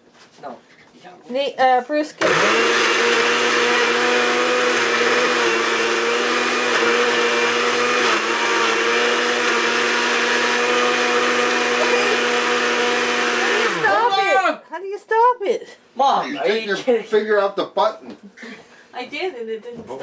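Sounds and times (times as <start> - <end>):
blender running: 2.2 - 14.5.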